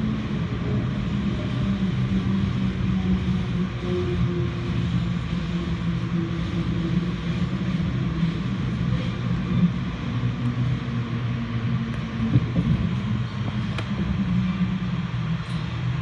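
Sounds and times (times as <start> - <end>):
train rumble from inside coach: 0.0 - 16.0.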